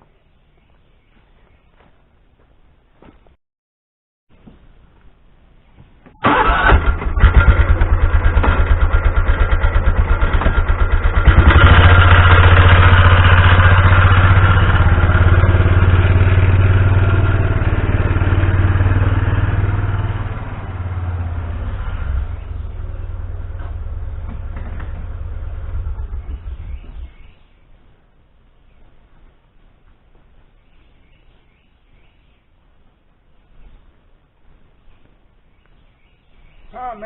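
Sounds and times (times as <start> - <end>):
vehicle engine starting and running: 6.1 - 27.4.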